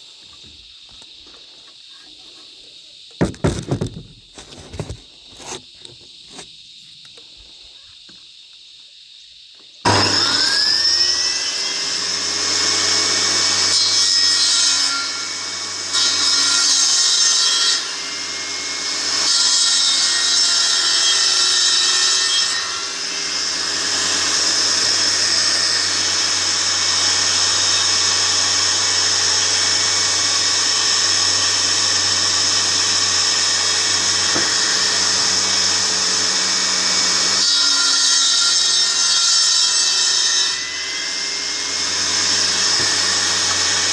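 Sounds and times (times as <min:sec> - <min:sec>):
electric power saw cutting wood: 0:09.8 - 0:43.9.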